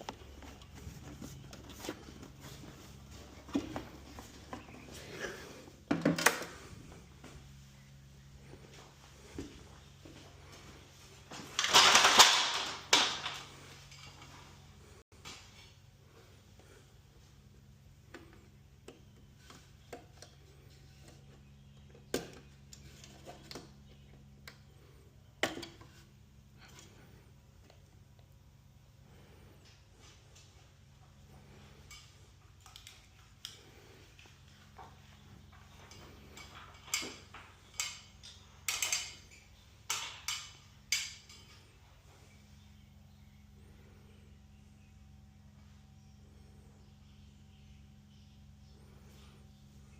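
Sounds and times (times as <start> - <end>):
steady low hum: 0.0 - 49.9
hard objects clicking and knocking: 11.6 - 14.2.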